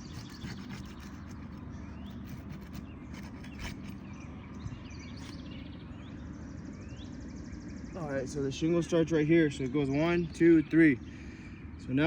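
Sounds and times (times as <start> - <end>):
bird chirps: 0.0 - 8.9.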